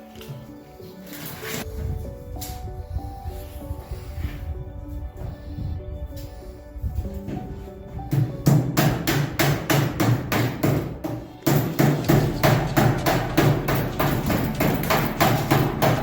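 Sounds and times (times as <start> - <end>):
driving percussive beat: 11.6 - 16.0.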